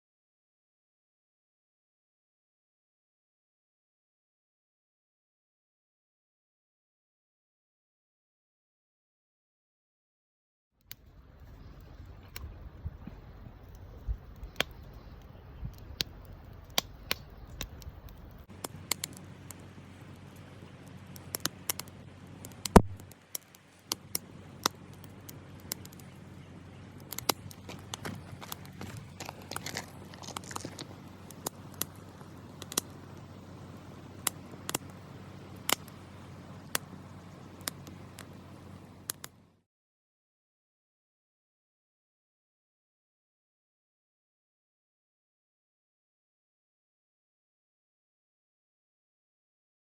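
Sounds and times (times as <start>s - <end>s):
campfire crackling: 10.9s - 39.6s.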